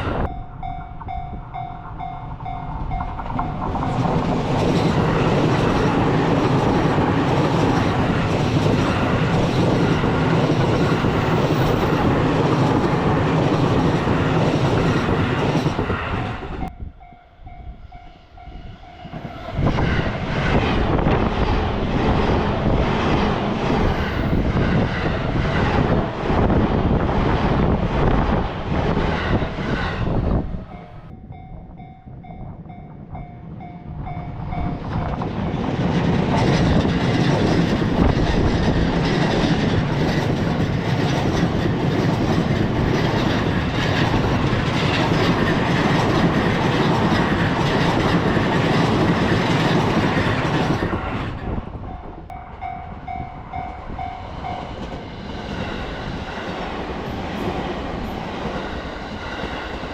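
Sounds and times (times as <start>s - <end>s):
level-crossing warning bell: 0.0s - 6.0s, 51.9s - 55.0s
train passing: 0.0s - 59.9s.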